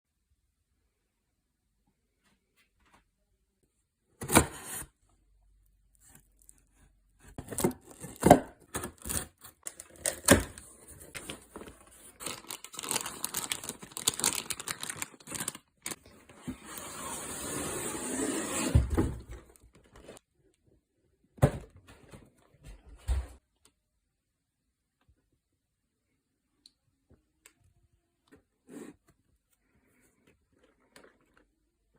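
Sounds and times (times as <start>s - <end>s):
cardboard tearing and crinkling: 7.2s - 16.0s.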